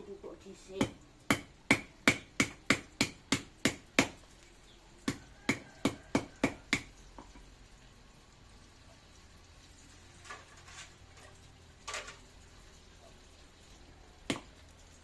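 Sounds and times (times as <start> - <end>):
root being pounded knocks: 0.8 - 4.2, 5.1 - 6.9, 14.3 - 14.5.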